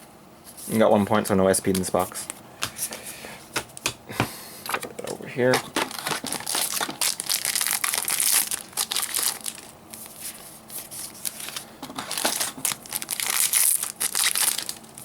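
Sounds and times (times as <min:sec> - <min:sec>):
foil wrappers crinkling: 0:05.5 - 0:15.0.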